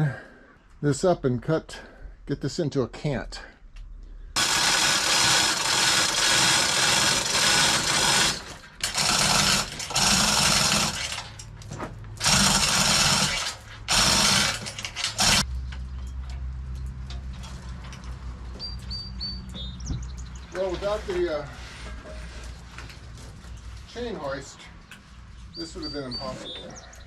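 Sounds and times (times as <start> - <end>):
chain hoist rattling: 4.4 - 11.6, 12.2 - 17.2.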